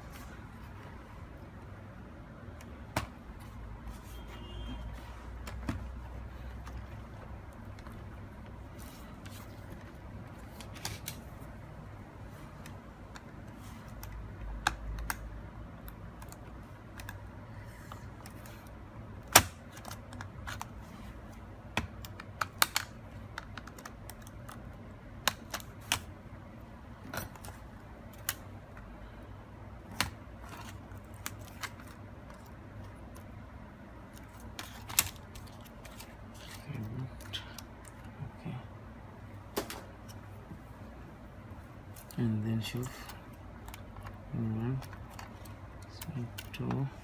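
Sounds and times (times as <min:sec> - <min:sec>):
clicks and taps of laptop parts: 0:02.5 - 0:03.2, 0:05.4 - 0:08.6, 0:12.6 - 0:17.3, 0:21.7 - 0:24.6, 0:25.2 - 0:26.1.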